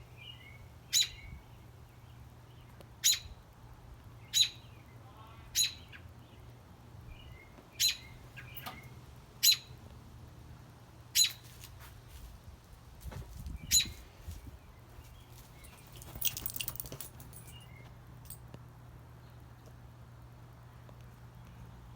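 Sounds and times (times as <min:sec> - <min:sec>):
bird chirping: 0:00.2 - 0:03.4, 0:04.2 - 0:04.9, 0:05.6 - 0:06.4, 0:07.1 - 0:09.8, 0:11.2 - 0:11.4, 0:13.6 - 0:17.9.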